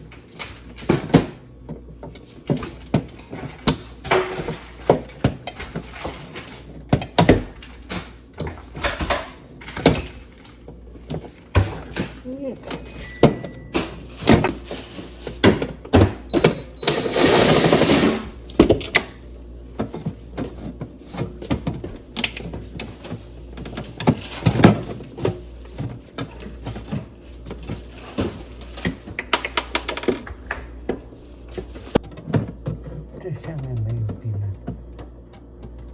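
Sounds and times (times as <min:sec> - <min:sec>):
steady low hum: 0:18.3 - 0:35.9
plastic parts knocking and clattering: 0:18.5 - 0:35.9.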